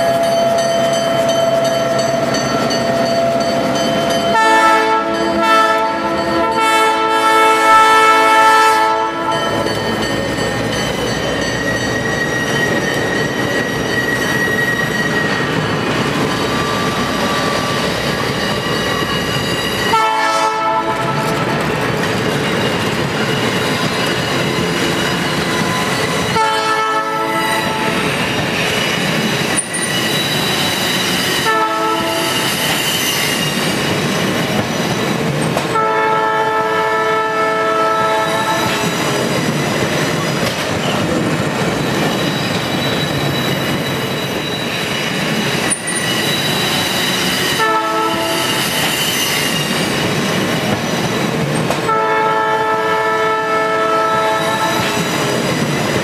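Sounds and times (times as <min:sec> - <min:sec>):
locomotive horn blasts: 0:04.3 - 0:09.7, 0:19.9 - 0:21.5, 0:26.3 - 0:28.0, 0:31.4 - 0:32.4, 0:35.8 - 0:38.8, 0:47.6 - 0:48.5, 0:51.9 - 0:54.9.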